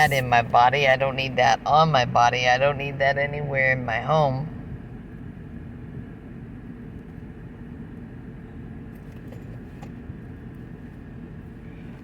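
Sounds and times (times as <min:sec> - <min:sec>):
low hum inside a car: 0:00.0 - 0:12.0.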